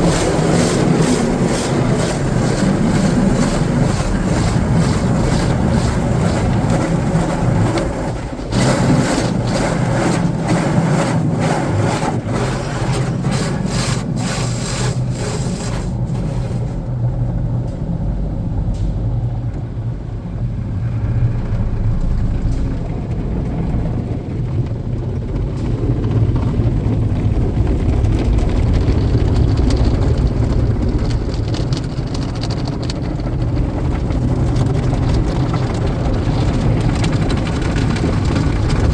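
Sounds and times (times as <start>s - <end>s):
car wash knocks: 0.0s - 16.8s
water spray and brushes on car: 0.0s - 16.9s, 31.1s - 38.9s
low rumble: 0.0s - 38.9s.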